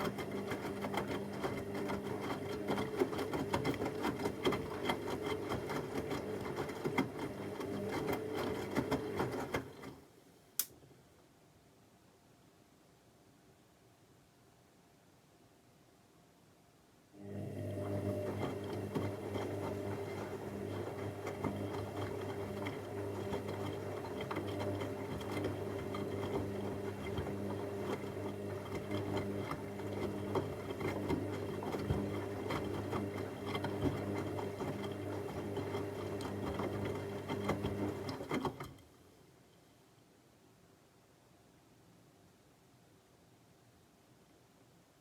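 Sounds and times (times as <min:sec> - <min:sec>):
washing machine motor hum: 0:00.0 - 0:10.1, 0:17.2 - 0:38.8.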